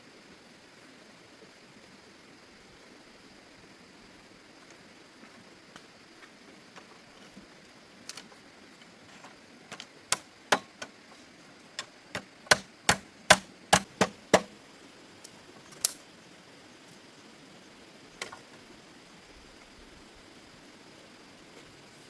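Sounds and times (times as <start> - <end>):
sharp knocks: 12.2 - 14.5.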